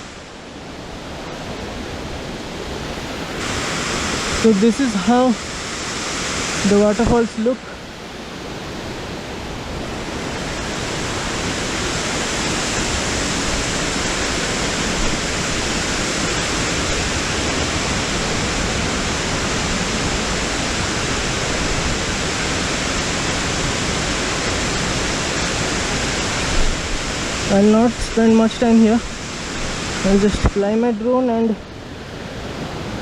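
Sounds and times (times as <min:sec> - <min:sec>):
waterfall crashing into pool: 0:03.0 - 0:07.8, 0:10.0 - 0:31.3.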